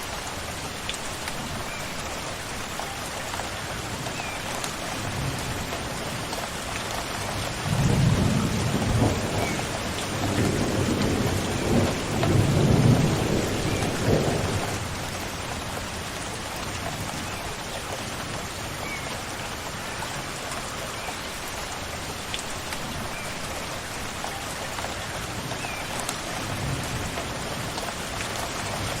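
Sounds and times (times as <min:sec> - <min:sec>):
steady rain falling: 0:00.0 - 0:29.0
rumble of thunder: 0:07.6 - 0:14.8.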